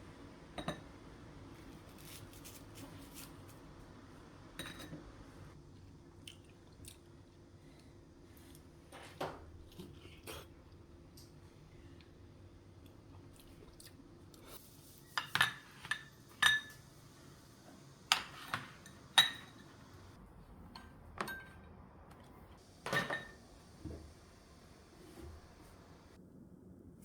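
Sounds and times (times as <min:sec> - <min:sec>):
dishes and cutlery clinking: 0:04.6 - 0:05.0, 0:15.0 - 0:16.9, 0:18.1 - 0:19.9, 0:20.8 - 0:21.7, 0:22.8 - 0:23.4.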